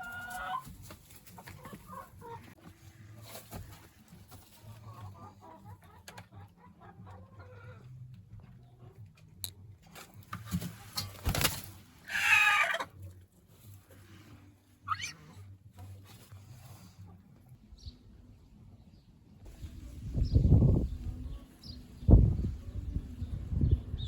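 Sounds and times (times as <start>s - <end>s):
chickens clucking: 0.0s - 9.4s, 10.0s - 13.1s
harsh chicken call: 12.1s - 12.9s.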